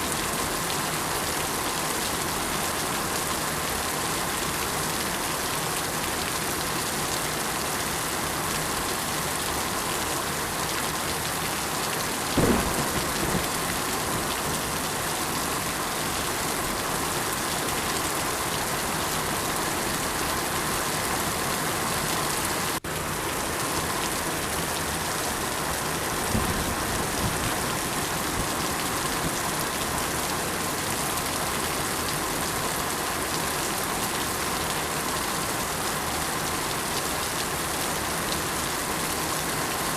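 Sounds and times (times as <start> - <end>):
steady rain: 0.0 - 39.9
thunder rumbling: 12.3 - 15.2.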